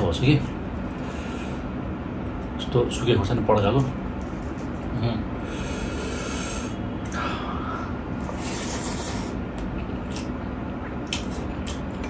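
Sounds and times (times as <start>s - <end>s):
man chewing food: 8.0s - 12.0s.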